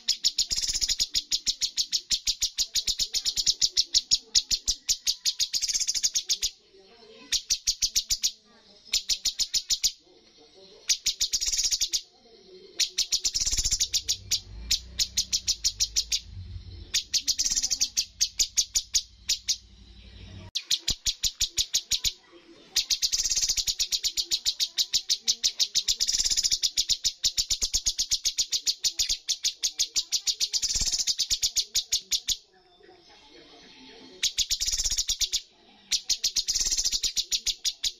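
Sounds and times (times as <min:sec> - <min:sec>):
bird singing sharp repeated notes: 0:00.0 - 0:10.0, 0:10.7 - 0:32.5, 0:34.0 - 0:37.9
low hum: 0:14.1 - 0:17.3.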